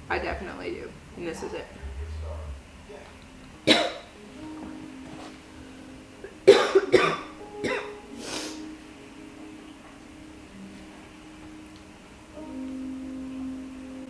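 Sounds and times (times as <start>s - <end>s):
faint background music: 0.0s - 14.0s
woman coughing: 3.6s - 4.1s, 6.4s - 8.5s.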